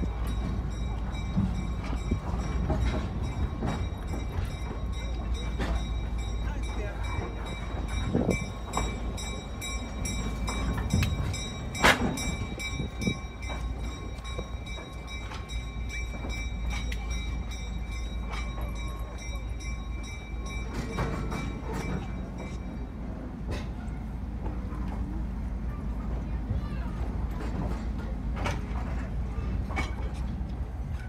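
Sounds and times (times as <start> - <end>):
train rolling rumble: 0.0 - 31.0.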